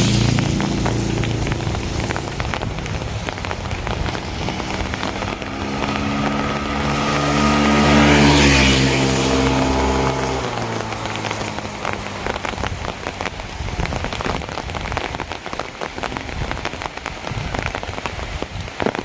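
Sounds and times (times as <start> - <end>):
vehicle engine driving past: 0.0 - 13.5
rain on hard surfaces: 0.0 - 19.0.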